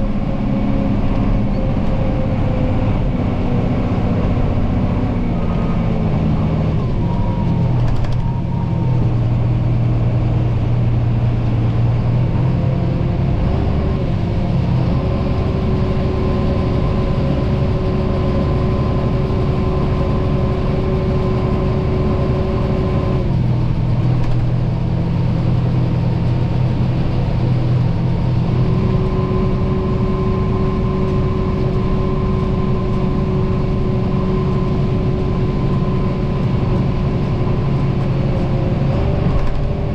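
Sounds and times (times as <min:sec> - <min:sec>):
diesel engine drone: 0:00.0 - 0:39.9.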